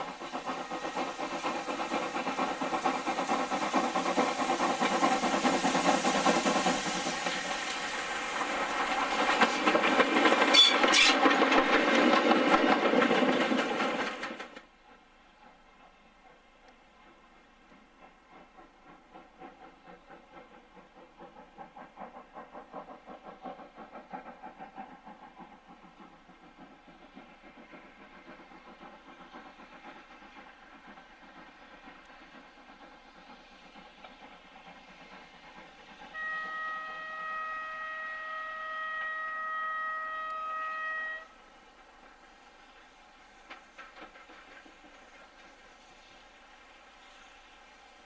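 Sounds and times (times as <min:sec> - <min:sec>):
locomotive whistle blowing: 0:10.5 - 0:11.3, 0:36.1 - 0:41.4.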